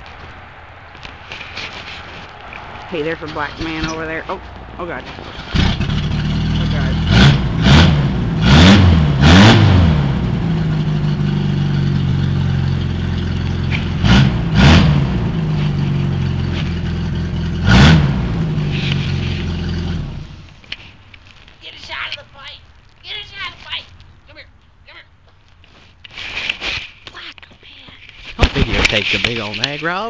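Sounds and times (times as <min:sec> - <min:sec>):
engine idling and revving: 0:00.0 - 0:20.7, 0:28.4 - 0:30.0.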